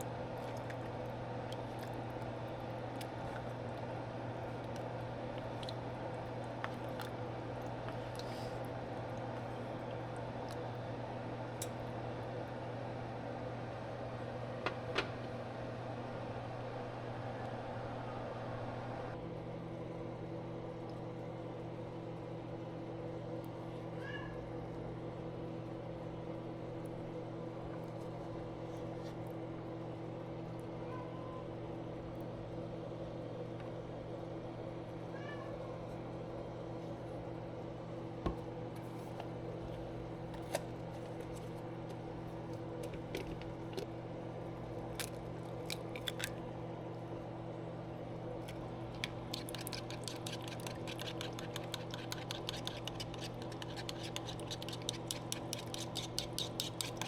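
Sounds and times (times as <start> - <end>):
steady mechanical hum: 0.0 - 57.0
cat meowing: 35.1 - 35.6.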